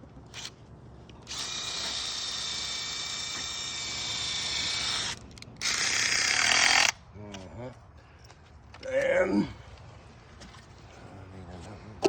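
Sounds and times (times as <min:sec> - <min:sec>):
power drill whining: 0:01.2 - 0:07.0.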